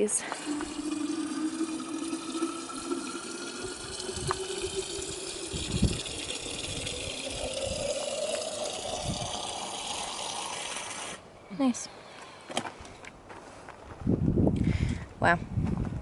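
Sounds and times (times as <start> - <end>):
water running from a tap: 0.4 - 11.2.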